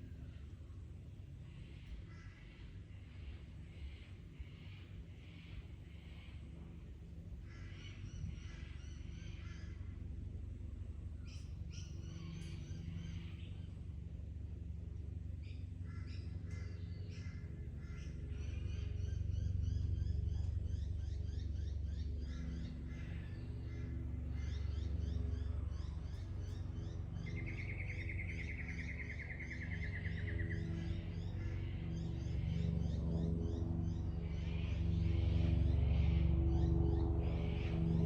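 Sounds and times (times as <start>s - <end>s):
steady low hum: 0.0s - 38.0s
birds chirping: 15.4s - 38.0s.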